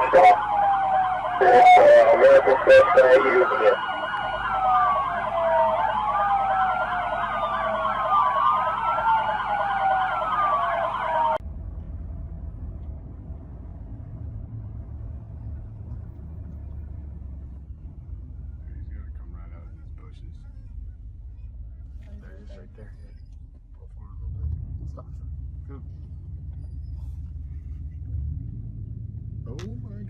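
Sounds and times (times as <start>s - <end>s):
police siren wailing: 0.0s - 11.4s
police siren yelping: 0.0s - 11.4s
low steady rumble: 11.4s - 30.0s.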